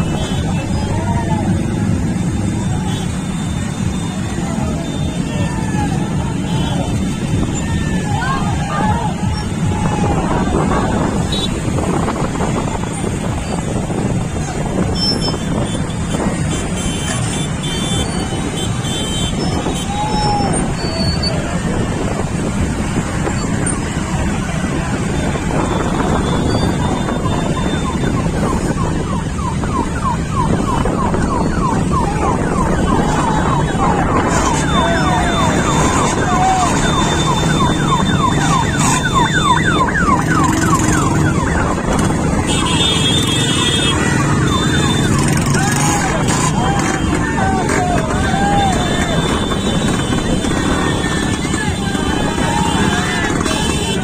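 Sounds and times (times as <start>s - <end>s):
people whooping and calling: 0.0s - 16.3s, 17.5s - 54.0s
many motorcycle engines running: 0.0s - 54.0s
warbling siren: 23.2s - 54.0s.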